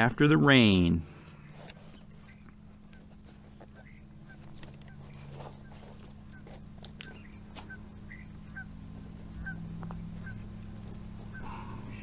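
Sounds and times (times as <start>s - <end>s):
steady low hum: 0.0s - 12.0s
bird calling in high notes: 3.7s - 12.0s.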